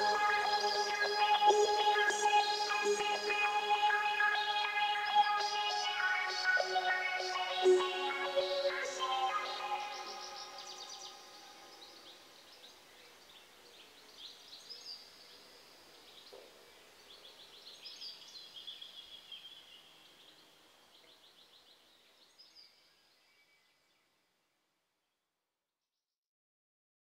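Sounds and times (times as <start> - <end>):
synth music: 0.0 - 11.4
faint birdsong with trills: 0.0 - 24.2.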